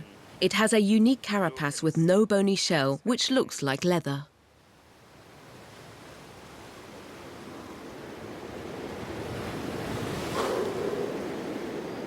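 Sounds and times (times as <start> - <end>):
ocean surf on sandy beach: 4.3 - 12.0.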